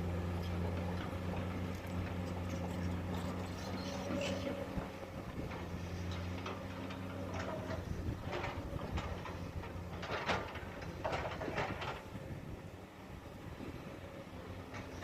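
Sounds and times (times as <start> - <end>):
excavator diesel engine running: 0.0 - 15.0
metallic clanks and knocks: 5.4 - 12.1.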